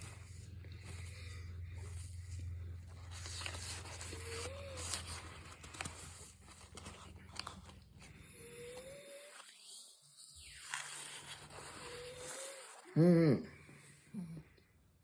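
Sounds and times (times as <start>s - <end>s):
low steady hum: 0.0s - 9.4s
packaging rustling and scraping: 1.8s - 9.6s.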